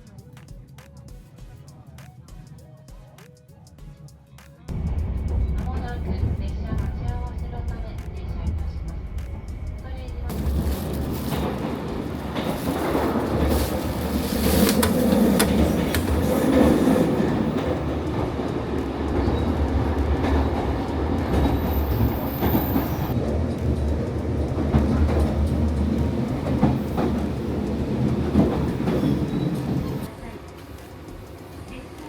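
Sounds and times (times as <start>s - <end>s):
train rumble from inside carriage: 4.7s - 32.0s
sharp clicks and clunks: 10.3s - 22.6s.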